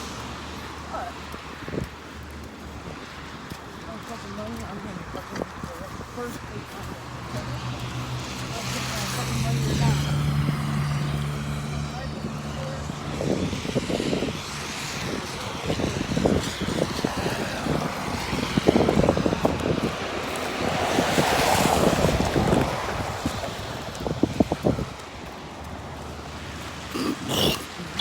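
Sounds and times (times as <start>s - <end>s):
wind buffeting microphone: 4.3s - 28.0s
car tyres hissing on wet road: 12.6s - 26.9s.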